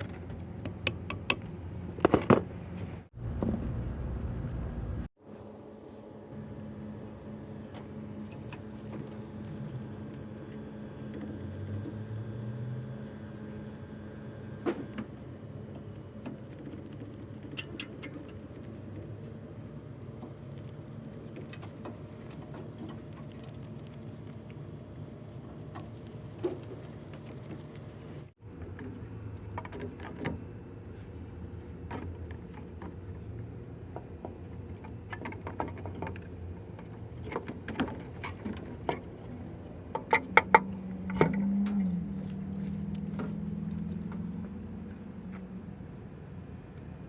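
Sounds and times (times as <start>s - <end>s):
sharp clicks and knocks: 17.4s - 18.4s.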